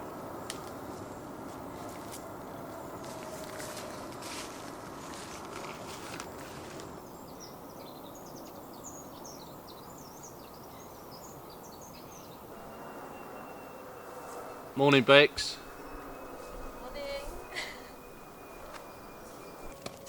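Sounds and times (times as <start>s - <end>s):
outdoor background hiss: 0.0s - 20.0s
small birds chirping: 6.9s - 14.7s.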